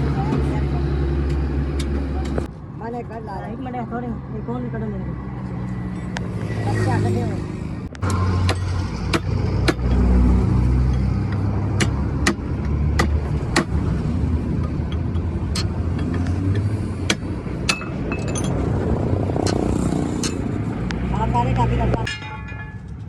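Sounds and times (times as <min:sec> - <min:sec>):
road vehicle engines rumbling: 0:00.0 - 0:23.0
metal tool clinks: 0:17.7 - 0:18.6.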